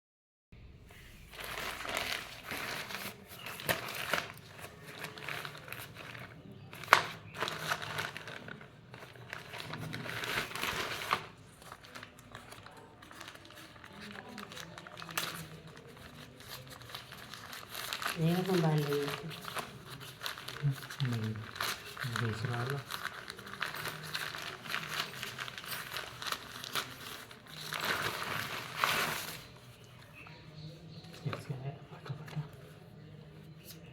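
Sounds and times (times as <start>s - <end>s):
packaging crinkling and rustling: 1.2s - 30.5s.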